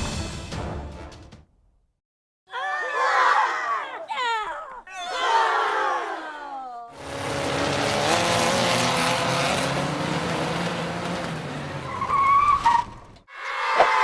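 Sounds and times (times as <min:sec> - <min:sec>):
tyres skidding: 0:07.0 - 0:14.0.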